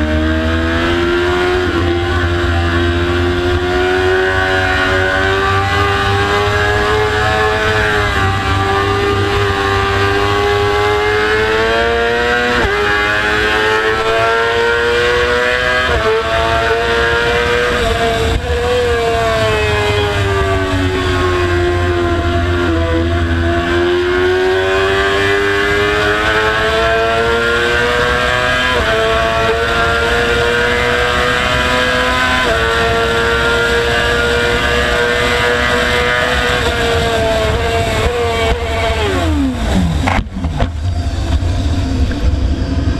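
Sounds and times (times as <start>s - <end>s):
racing motorcycle engine: 0.0s - 42.9s
low rumble: 39.5s - 42.9s.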